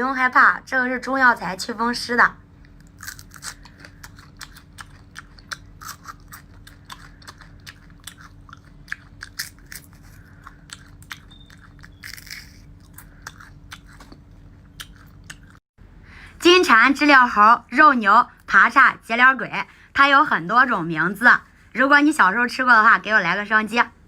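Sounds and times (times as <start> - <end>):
crunching and chewing: 2.6 - 15.6.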